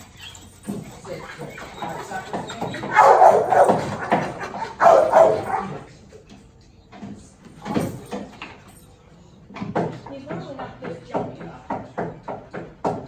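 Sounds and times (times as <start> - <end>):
dog barking and yipping: 1.3 - 5.9.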